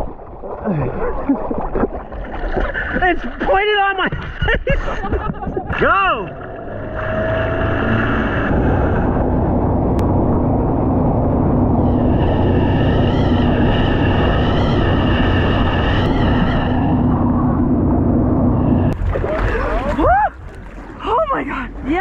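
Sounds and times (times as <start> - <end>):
jet ski engine running: 5.2 - 22.0.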